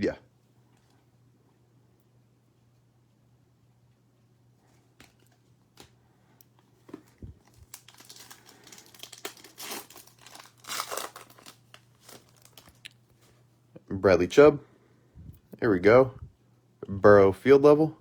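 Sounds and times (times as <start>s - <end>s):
plastic wrapper crinkling and tearing: 6.9s - 13.1s.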